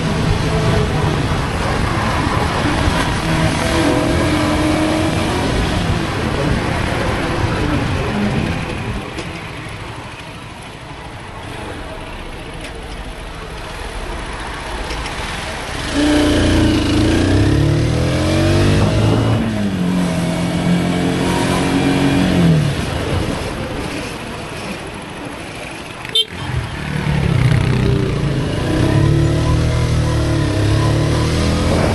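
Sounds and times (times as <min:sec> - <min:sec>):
motorcycle engine under hard throttle: 0:00.0 - 0:09.2, 0:14.3 - 0:31.9
wind noise: 0:15.9 - 0:25.2, 0:27.3 - 0:31.9.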